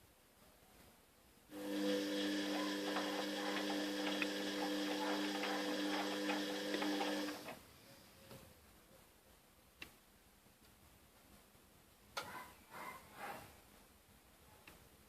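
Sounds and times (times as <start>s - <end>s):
washing machine motor hum: 1.5s - 7.6s.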